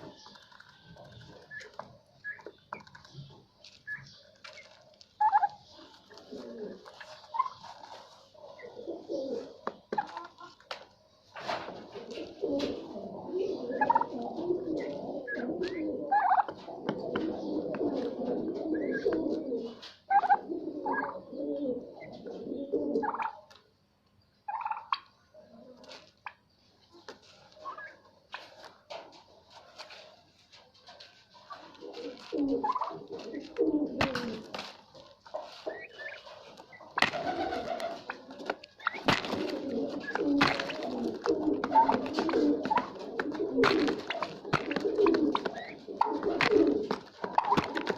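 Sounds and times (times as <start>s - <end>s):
turkey rattling calls: 0.0s - 10.8s, 12.6s - 19.2s, 20.1s - 21.3s, 23.0s - 23.6s, 24.5s - 25.2s, 27.6s - 28.1s, 31.5s - 47.9s
turkeys cooing murmur: 0.0s - 10.9s, 11.7s - 23.6s, 24.5s - 30.0s, 31.4s - 47.9s.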